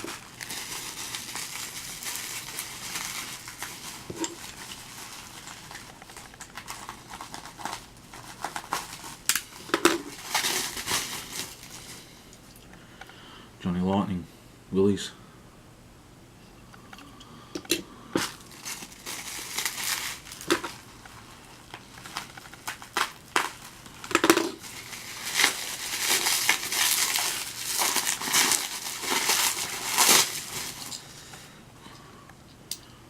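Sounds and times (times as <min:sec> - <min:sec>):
packaging crinkling and rustling: 0:00.0 - 0:12.6, 0:18.2 - 0:31.6.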